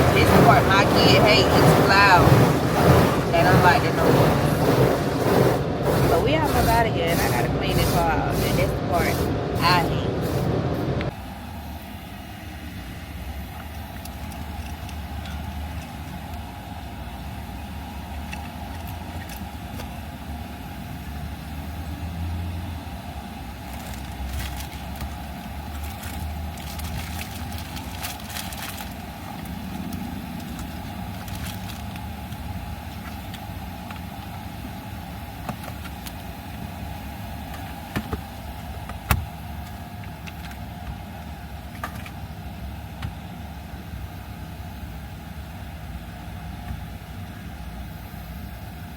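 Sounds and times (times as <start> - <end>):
car engine running: 0.0 - 11.2, 21.1 - 47.0.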